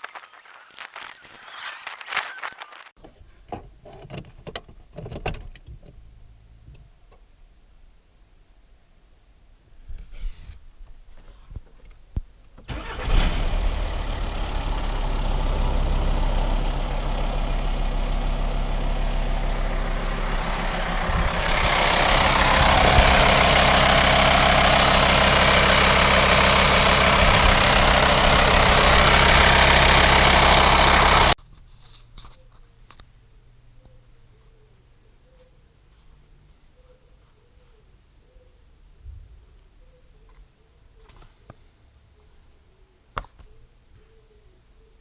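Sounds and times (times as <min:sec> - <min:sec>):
diesel engine starting and idling: 0:12.7 - 0:31.4.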